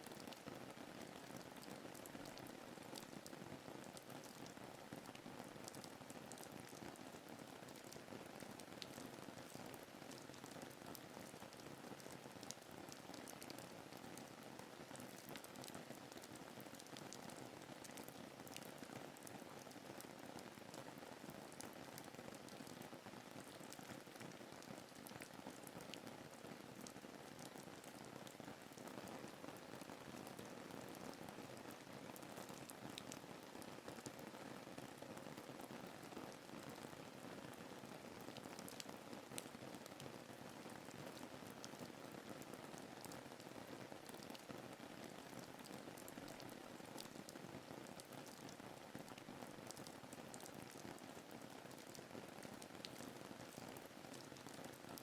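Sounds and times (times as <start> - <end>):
faint rain patter: 0.0 - 55.0
raindrop ticks: 38.6 - 39.5.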